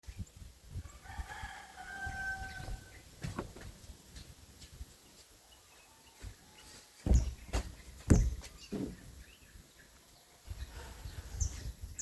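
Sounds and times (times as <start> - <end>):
low irregular thumps: 7.0 - 9.2.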